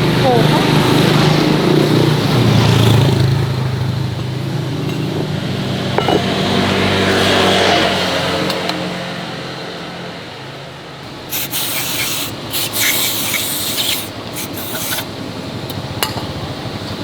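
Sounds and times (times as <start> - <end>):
engine running steadily: 0.0 - 8.8, 11.0 - 17.0.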